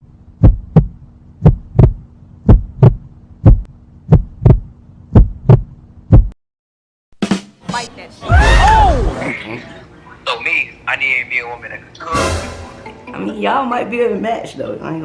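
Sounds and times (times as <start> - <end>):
steady low hum: 0.0 - 6.3
heartbeat thumps: 0.3 - 6.4.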